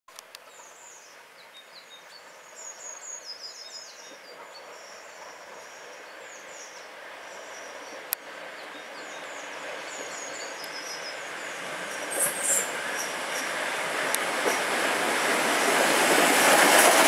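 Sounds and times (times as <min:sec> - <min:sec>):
small birds chirping: 0:00.3 - 0:13.7
train running noise: 0:02.0 - 0:17.0.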